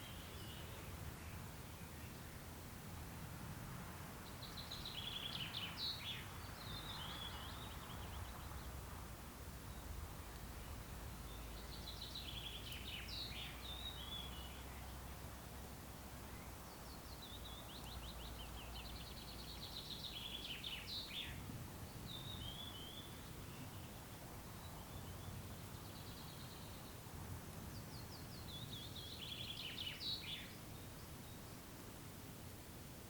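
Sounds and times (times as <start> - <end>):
songbird singing rapid trills: 0.0 - 2.4, 4.2 - 8.8, 9.6 - 27.0, 27.6 - 31.6.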